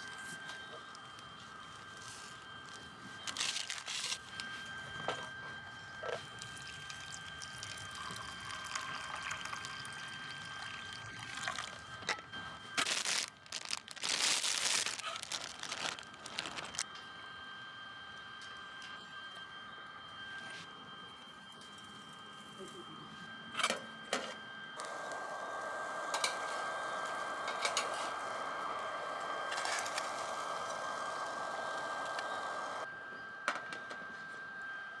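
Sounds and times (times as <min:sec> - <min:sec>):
liquid pouring: 0:06.9 - 0:11.8.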